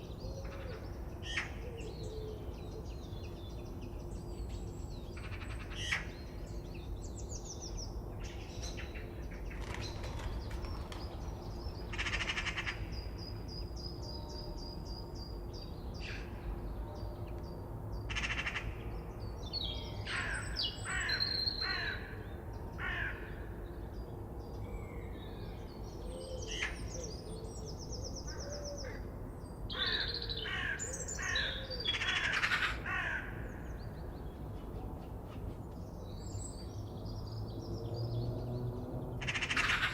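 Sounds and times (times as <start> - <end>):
birds singing and trilling: 0.0 - 39.9
harsh cawing bird calls: 5.2 - 6.1, 11.8 - 13.2, 18.1 - 18.9, 20.0 - 23.6, 29.7 - 33.9, 39.2 - 39.9.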